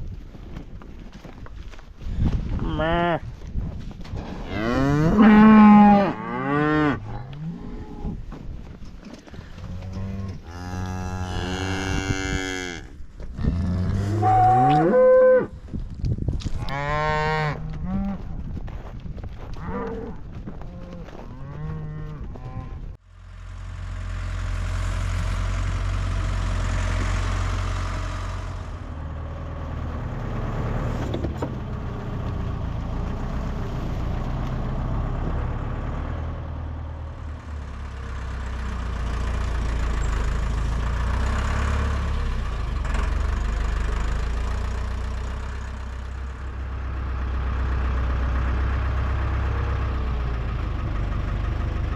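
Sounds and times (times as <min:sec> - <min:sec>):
cattle mooing: 0:02.6 - 0:03.2, 0:04.4 - 0:08.2, 0:09.6 - 0:15.5, 0:16.6 - 0:18.3, 0:19.6 - 0:22.9.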